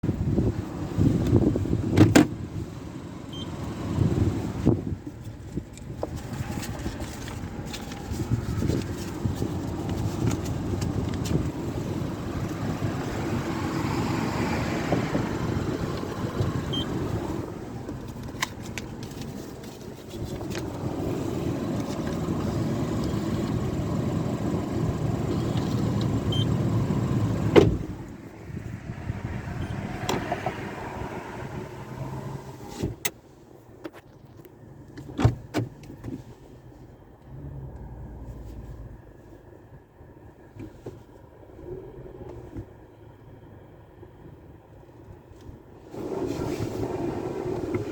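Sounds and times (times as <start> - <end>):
cars passing: 6.1 - 18.7, 20.5 - 32.8.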